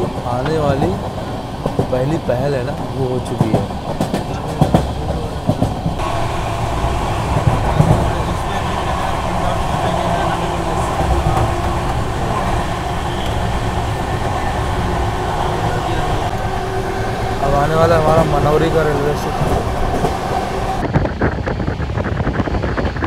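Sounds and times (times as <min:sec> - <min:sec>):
train rumbling on track: 0:00.0 - 0:23.0.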